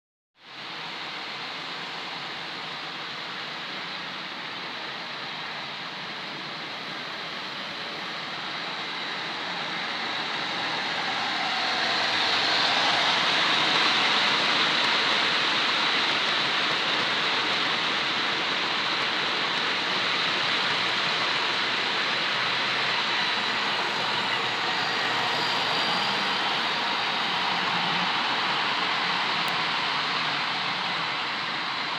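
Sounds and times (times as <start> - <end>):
wheels rolling on rail: 6.0 - 31.9
model train motor whirr: 8.2 - 31.9.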